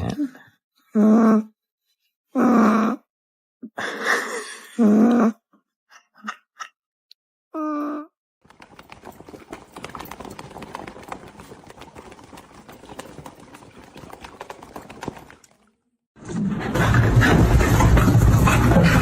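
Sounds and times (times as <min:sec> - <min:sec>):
animal claws clattering on hard surface: 0:08.5 - 0:15.6.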